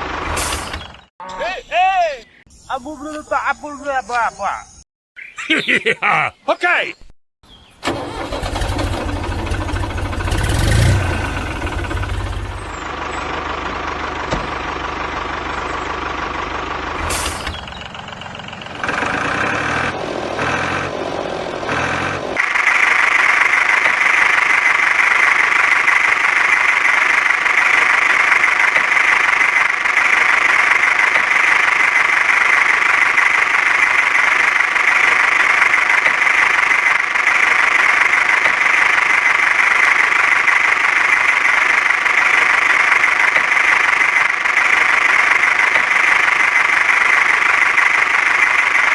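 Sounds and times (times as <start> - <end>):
small tractor engine chugging: 7.9 - 19.3, 22.4 - 48.9.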